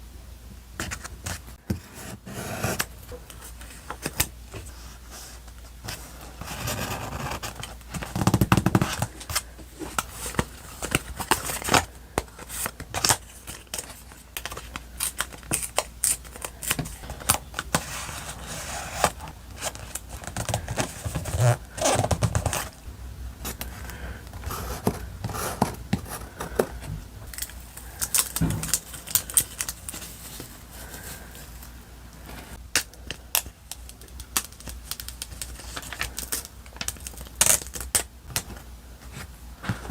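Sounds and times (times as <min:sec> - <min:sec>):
paper crinkling and rustling: 0:03.1 - 0:22.8, 0:23.4 - 0:31.7, 0:32.3 - 0:39.9
louder thumps: 0:28.4 - 0:28.9.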